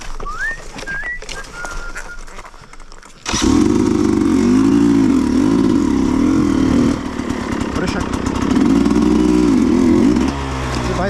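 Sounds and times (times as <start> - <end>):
whistle-like chirps: 0.2 - 2.6
dirt bike engine revving: 3.2 - 11.0.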